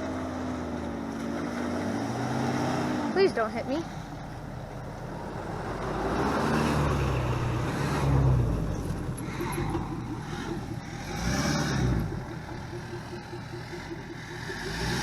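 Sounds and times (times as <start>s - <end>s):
pickup truck engine running: 3.0s - 15.0s.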